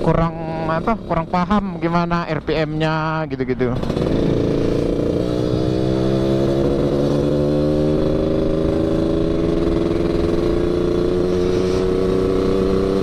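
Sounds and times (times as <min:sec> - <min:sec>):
two-stroke motorcycle engine: 0:00.0 - 0:13.0.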